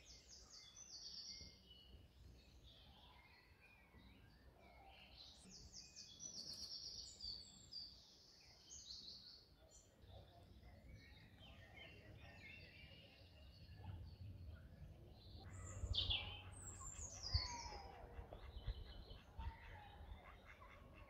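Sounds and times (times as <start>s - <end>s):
songbirds chirping and singing: 0.0s - 21.0s.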